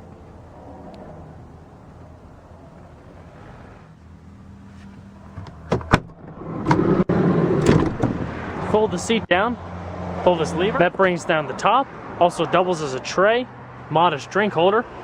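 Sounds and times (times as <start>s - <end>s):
car door fittings clicking and clunking: 5.3s - 8.5s.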